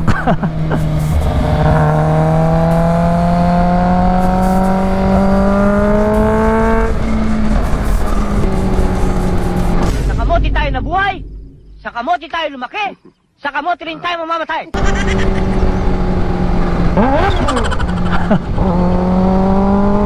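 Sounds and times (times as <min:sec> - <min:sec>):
motorcycle engine accelerating: 0:00.0 - 0:10.1, 0:14.8 - 0:20.0.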